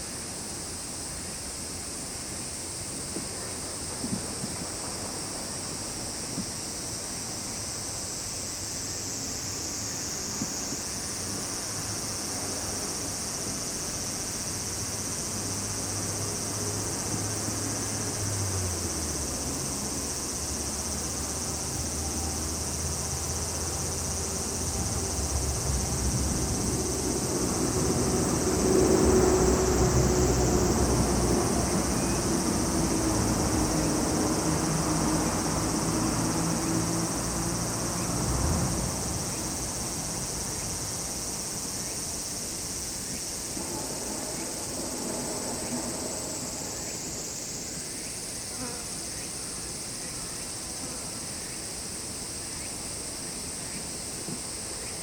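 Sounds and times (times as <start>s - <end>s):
chorus of insects: 0.0s - 55.0s
propeller aircraft droning overhead: 15.3s - 41.4s, 43.0s - 48.5s.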